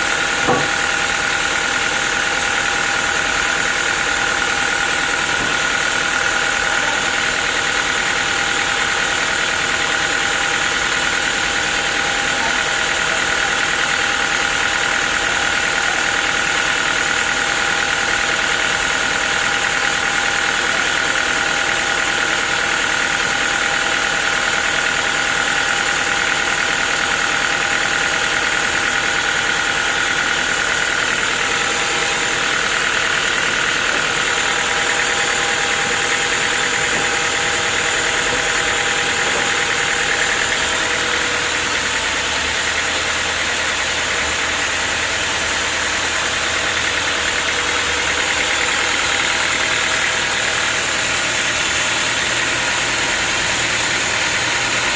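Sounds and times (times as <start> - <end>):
high machine whine: 29.6 - 43.5.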